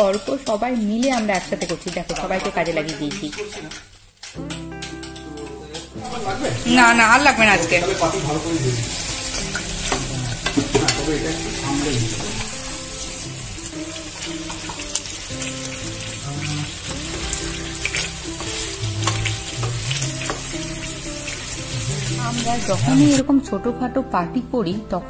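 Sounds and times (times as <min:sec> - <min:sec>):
spoon clicking against pan: 0:00.0 - 0:05.5
chicken sizzling in pan: 0:00.0 - 0:23.3
soft music: 0:00.0 - 0:25.0.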